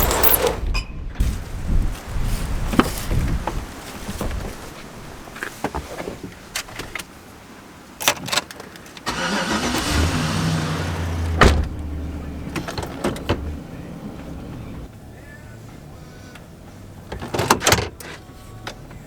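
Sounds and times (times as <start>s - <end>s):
engine starter cranking: 9.0s - 11.9s.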